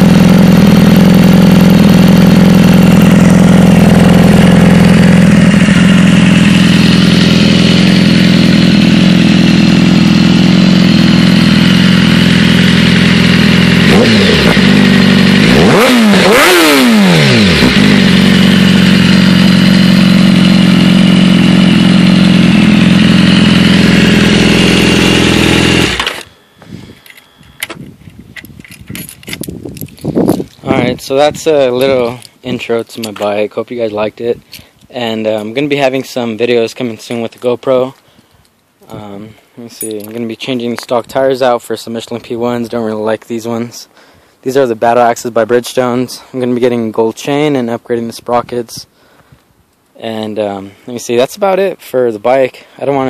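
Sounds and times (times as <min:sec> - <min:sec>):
motorcycle engine idling and revving: 0:00.0 - 0:37.6.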